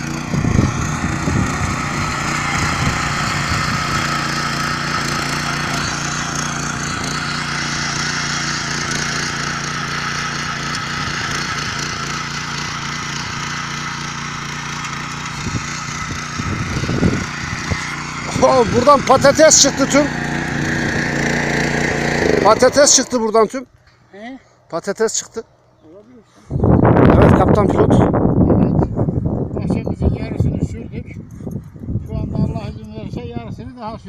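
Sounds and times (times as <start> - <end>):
tiller engine humming: 0.0 - 24.6.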